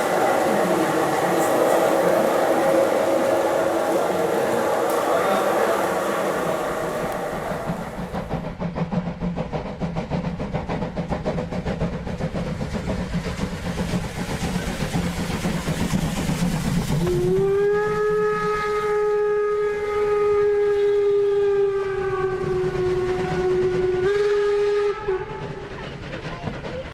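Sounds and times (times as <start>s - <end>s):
model train wheels clicking: 0.0s - 17.1s.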